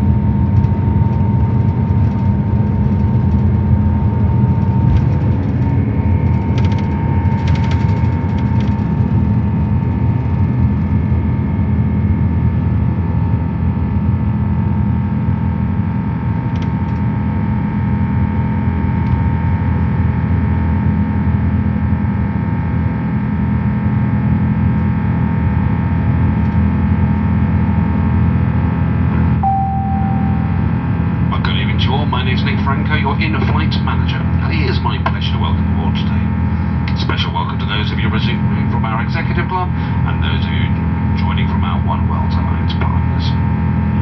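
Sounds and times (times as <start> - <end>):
airplane cabin engine roar: 0.0 - 44.0
whining tones: 29.4 - 31.3.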